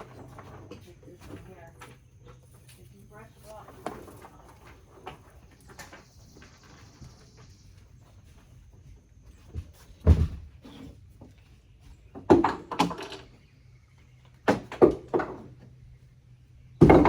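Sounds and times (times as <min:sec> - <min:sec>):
hard objects knocking and thumping: 0:09.6 - 0:11.0, 0:12.2 - 0:13.2, 0:14.5 - 0:15.7, 0:16.8 - 0:17.0.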